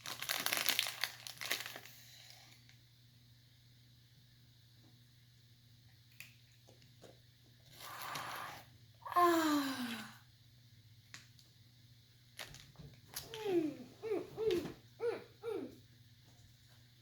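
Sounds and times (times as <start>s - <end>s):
child groaning in disgust: 9.0s - 10.2s, 13.3s - 15.8s.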